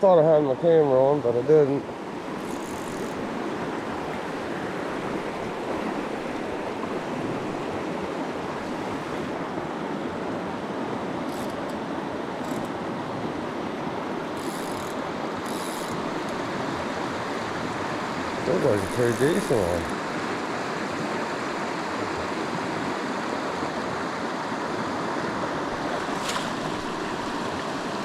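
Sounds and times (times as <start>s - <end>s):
creek water rushing: 0.1s - 28.0s
short high-pitched rasps: 2.4s - 3.2s, 14.4s - 16.3s, 18.5s - 19.9s.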